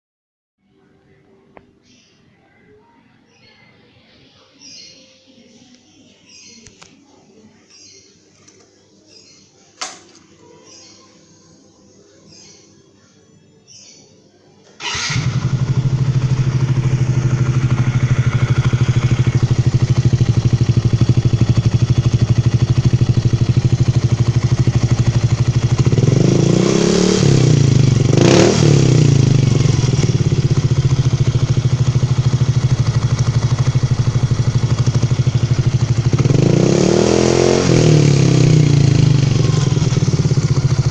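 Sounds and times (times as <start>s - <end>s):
scooter engine idling and revving: 14.8s - 40.9s.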